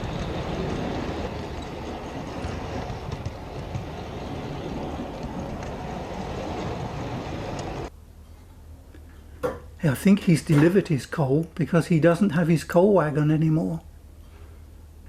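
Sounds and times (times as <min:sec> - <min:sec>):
model train rumbling on rails: 0:00.0 - 0:07.9.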